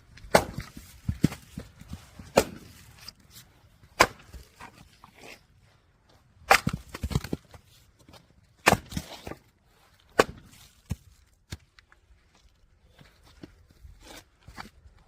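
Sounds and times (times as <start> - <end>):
axe splitting firewood: 0.1 - 5.4, 6.4 - 11.8.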